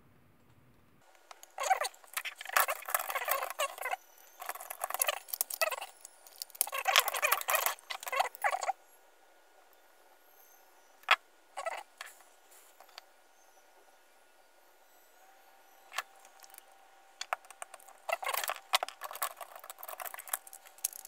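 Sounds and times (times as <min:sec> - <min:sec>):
plastic parts scratching and clicking: 0:01.2 - 0:08.7, 0:15.9 - 0:21.0.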